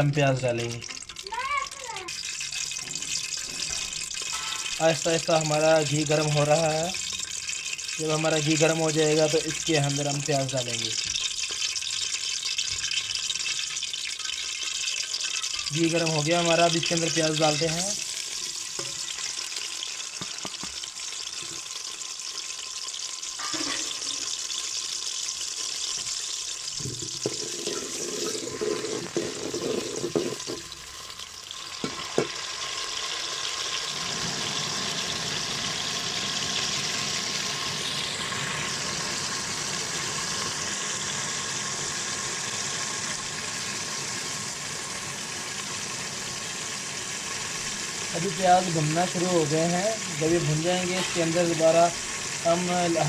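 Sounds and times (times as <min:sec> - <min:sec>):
onions sizzling in hot fat: 0:00.0 - 0:53.0
spoon scraping a pot: 0:27.0 - 0:30.6, 0:50.8 - 0:51.5.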